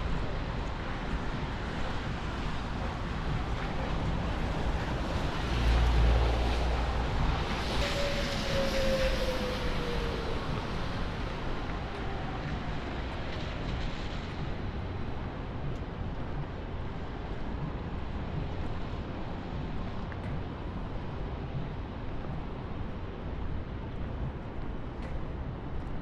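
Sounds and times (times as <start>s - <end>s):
tyres hissing on wet street: 0.1s - 14.9s.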